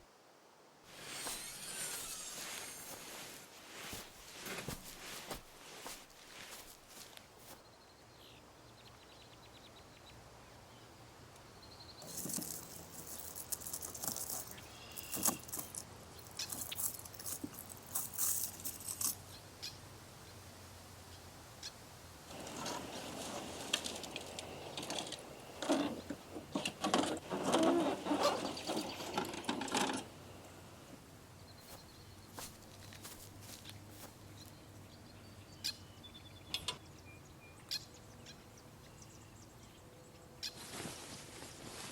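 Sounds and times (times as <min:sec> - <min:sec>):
quiet forest ambience: 0:00.0 - 0:41.9
rustling and knocking: 0:00.9 - 0:07.3
gear clinking and jangling: 0:12.0 - 0:19.2.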